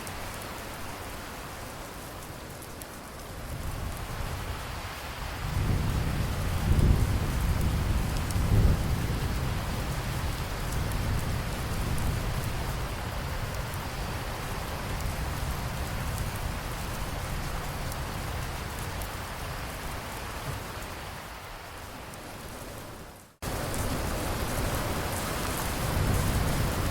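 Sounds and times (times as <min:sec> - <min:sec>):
steady rain: 0:00.0 - 0:26.9
thunder rumbling: 0:05.3 - 0:21.0, 0:22.2 - 0:26.9.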